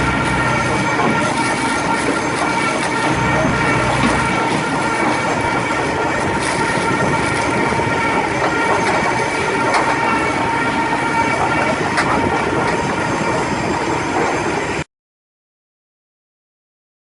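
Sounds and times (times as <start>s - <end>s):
log debarker clattering: 0.0s - 10.6s.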